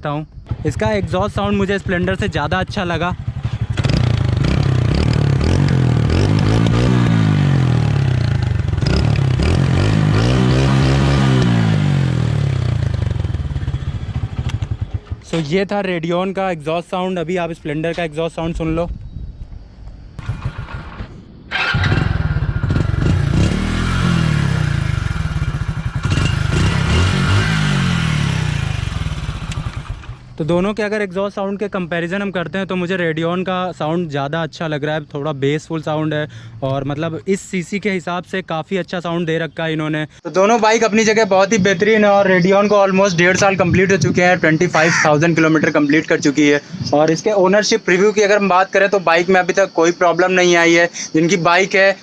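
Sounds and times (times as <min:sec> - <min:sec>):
motorcycle engine revving: 0:00.5 - 0:15.4, 0:20.2 - 0:30.4.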